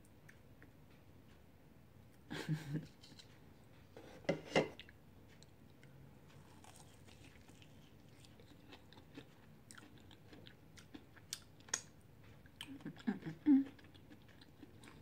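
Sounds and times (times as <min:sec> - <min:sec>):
quiet chewing with crackles: 0:04.7 - 0:15.0
person crunching chicken wing: 0:06.4 - 0:11.9.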